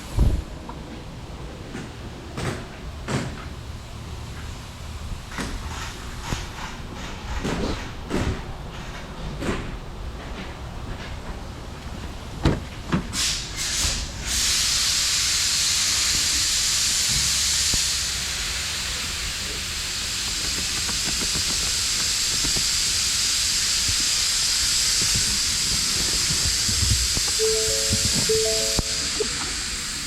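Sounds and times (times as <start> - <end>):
loud steady hiss: 13.1 - 30.0.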